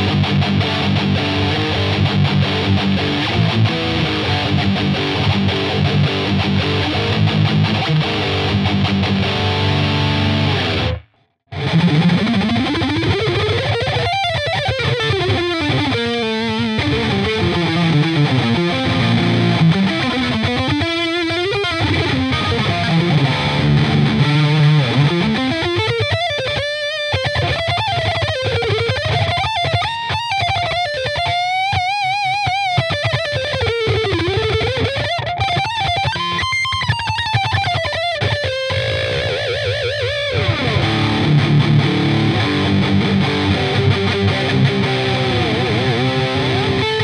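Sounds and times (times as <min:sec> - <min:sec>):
distorted electric guitar: 0:00.0 - 0:47.0.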